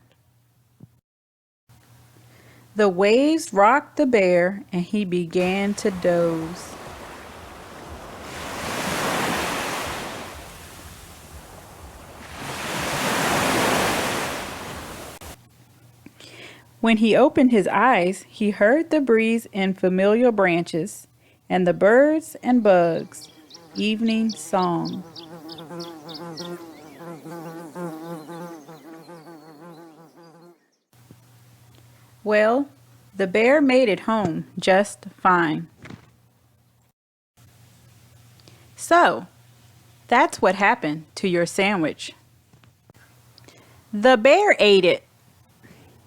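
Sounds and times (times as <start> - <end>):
insect pulsing buzz: 5.4 - 15.4, 23.0 - 30.7
ocean waves breaking: 5.4 - 15.4
high bird chirps: 23.2 - 30.5.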